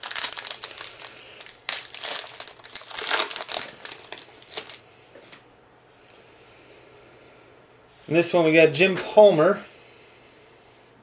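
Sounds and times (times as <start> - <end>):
wrapper crinkling and rustling: 0.0 - 4.8.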